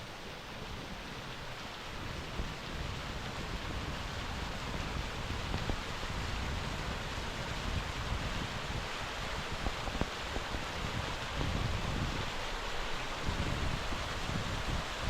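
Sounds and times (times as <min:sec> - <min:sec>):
waterfall rushing and splashing: 0:00.0 - 0:15.0.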